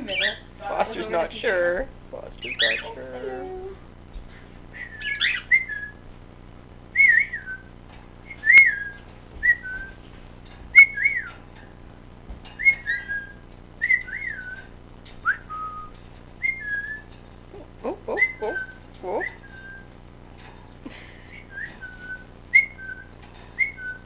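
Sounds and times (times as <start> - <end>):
cockatiel whistling: 4.8 - 6.0, 6.9 - 10.0, 10.7 - 11.4, 12.6 - 17.1, 18.2 - 19.9, 21.3 - 24.0.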